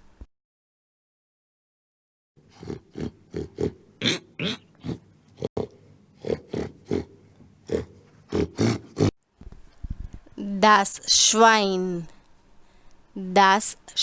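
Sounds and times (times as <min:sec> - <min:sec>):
pig grunting: 0:02.4 - 0:09.1.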